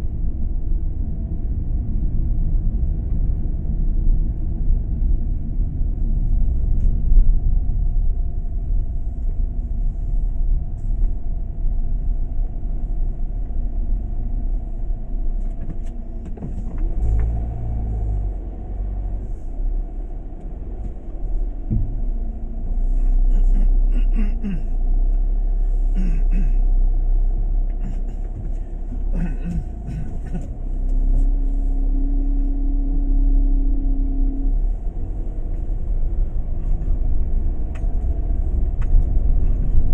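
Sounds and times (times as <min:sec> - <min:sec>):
vehicle rumbling on road: 0:00.0 - 0:39.9.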